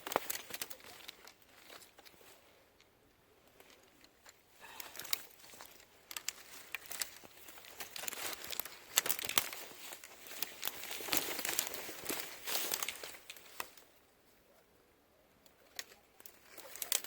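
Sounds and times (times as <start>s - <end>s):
footsteps crunching through undergrowth: 0.0s - 2.5s, 4.7s - 13.9s.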